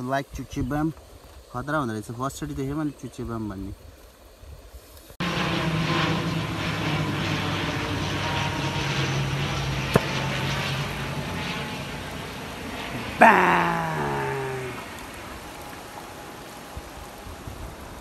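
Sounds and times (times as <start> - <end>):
engine drone: 5.2 - 18.0.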